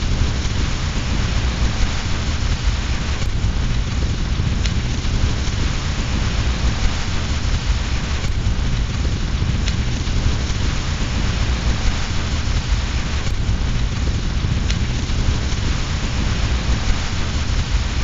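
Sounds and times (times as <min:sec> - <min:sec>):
deep low rumble: 0:00.0 - 0:18.0
fireplace fire crackle: 0:00.0 - 0:18.0
heavy rain: 0:00.0 - 0:18.0.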